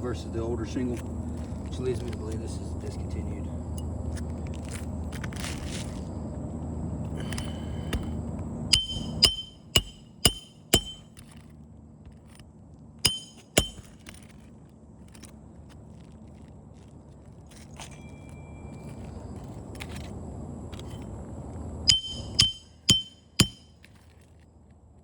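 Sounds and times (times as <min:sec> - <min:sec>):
hammer driving nails into shingle: 0:07.2 - 0:11.4, 0:13.1 - 0:14.3, 0:21.9 - 0:23.7.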